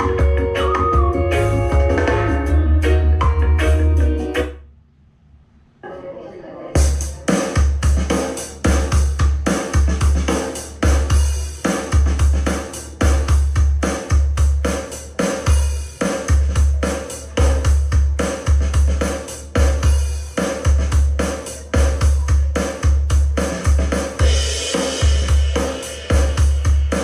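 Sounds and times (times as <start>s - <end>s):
snare and cymbals: 6.8s - 27.0s.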